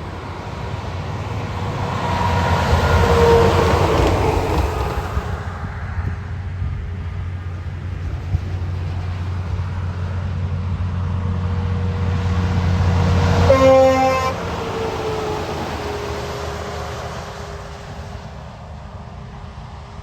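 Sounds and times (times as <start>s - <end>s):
truck passing: 0.0s - 20.0s
truck horn toot: 13.4s - 14.4s.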